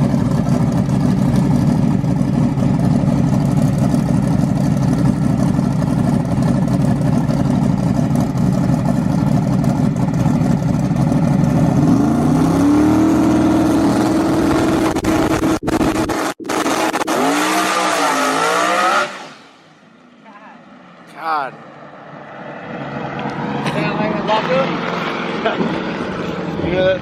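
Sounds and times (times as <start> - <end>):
race car engine revving: 8.4 - 19.7.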